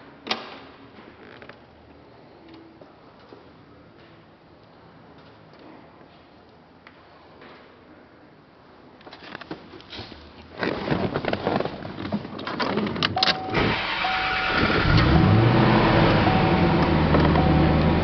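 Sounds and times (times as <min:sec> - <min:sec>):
car engine starting and idling: 0:13.1 - 0:18.0.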